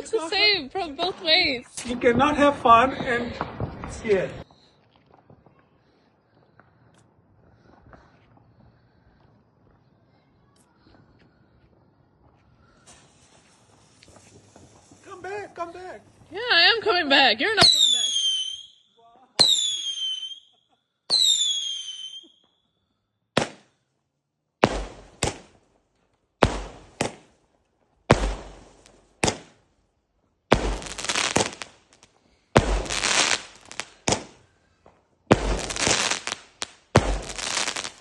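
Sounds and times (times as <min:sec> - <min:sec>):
firework bangs with crackling: 0:00.3 - 0:04.5, 0:12.7 - 0:16.9, 0:17.5 - 0:18.7, 0:19.4 - 0:20.4, 0:23.4 - 0:23.8, 0:24.6 - 0:25.7, 0:26.4 - 0:27.4, 0:28.0 - 0:29.7, 0:30.5 - 0:38.0.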